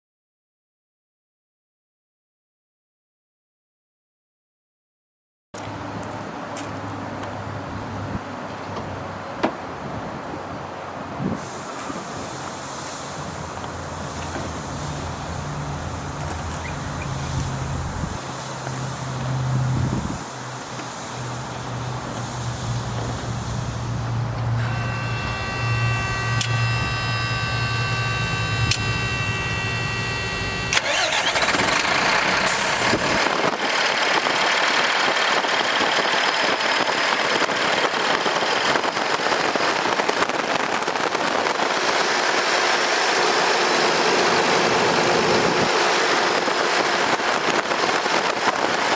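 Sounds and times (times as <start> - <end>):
loud even hiss: 11.2 - 34.8
diesel engine starting and running: 11.4 - 48.9
steady high pitched tone: 24.5 - 33.2.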